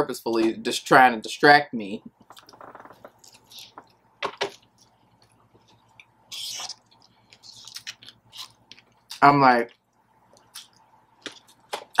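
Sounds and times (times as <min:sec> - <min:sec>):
person chewing: 0:03.1 - 0:11.7.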